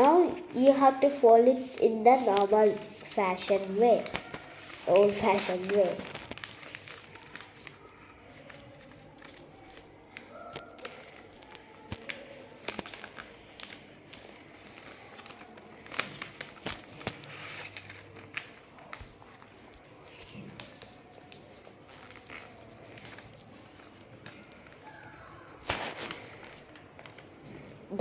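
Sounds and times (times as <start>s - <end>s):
paper rustling and crinkling: 1.3s - 28.0s
paper taps and clicks: 3.4s - 19.5s.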